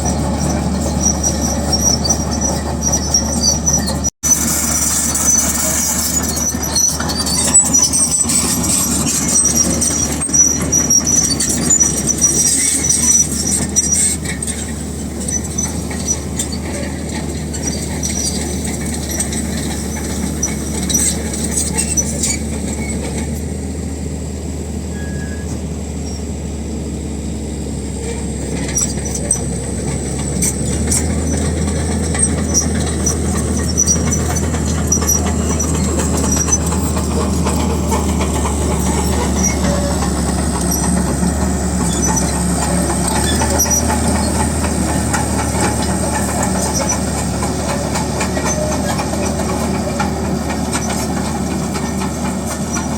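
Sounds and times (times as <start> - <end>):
diesel engine running: 0.0 - 52.9
steel tracks squealing and clanking: 0.0 - 52.9.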